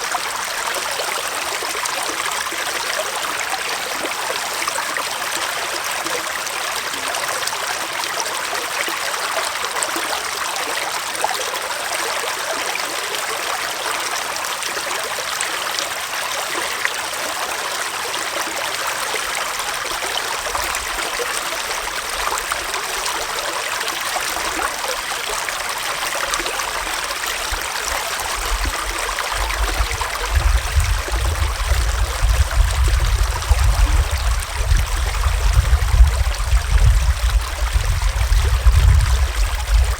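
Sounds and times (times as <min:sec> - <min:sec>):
stream trickling and gurgling: 0:00.0 - 0:39.9
low rumble: 0:29.7 - 0:39.9.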